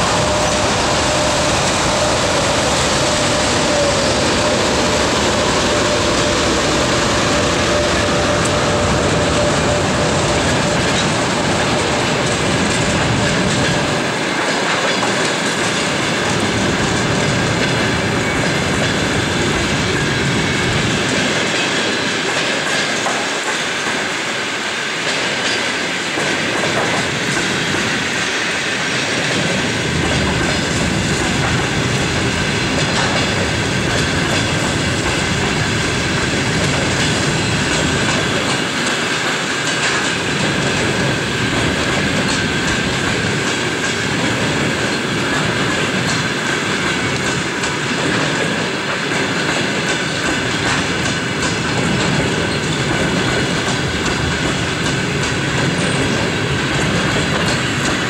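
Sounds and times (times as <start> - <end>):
high wheel squeal: 0.0 - 12.2
train coaches rolling past: 0.0 - 58.0
train wheels clicking over rail joints: 0.0 - 58.0.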